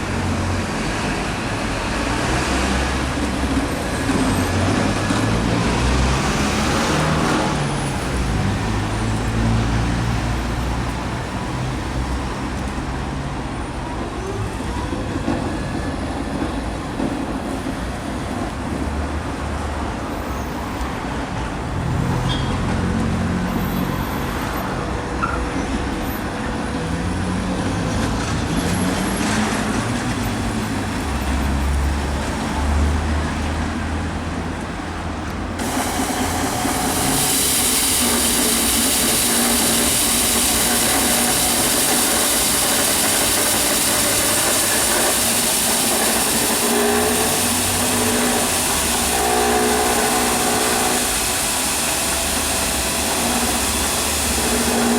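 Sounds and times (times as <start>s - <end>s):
floor scrubber running: 2.2s - 12.6s, 35.6s - 54.9s.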